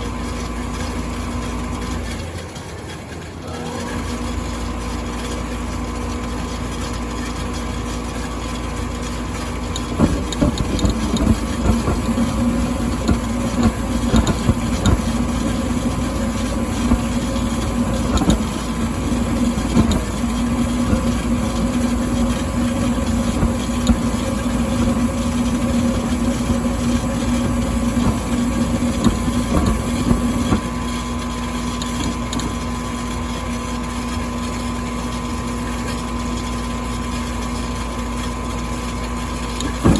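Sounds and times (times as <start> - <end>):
furnace humming: 0.0 - 39.9
fast irregular clicking: 9.6 - 32.9, 39.6 - 39.9.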